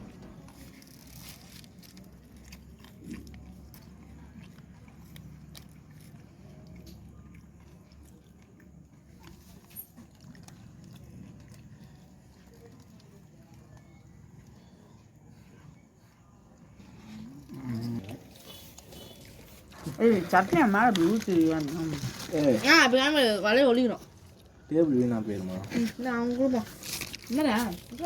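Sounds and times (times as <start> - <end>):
person chewing crunchy food: 0.0 - 15.4.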